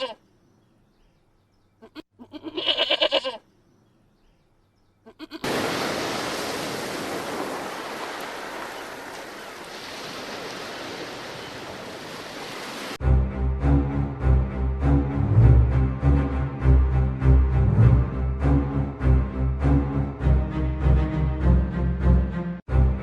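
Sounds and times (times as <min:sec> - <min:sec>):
farm animal bleating: 0:00.0 - 0:00.2, 0:01.8 - 0:03.5, 0:05.0 - 0:05.5.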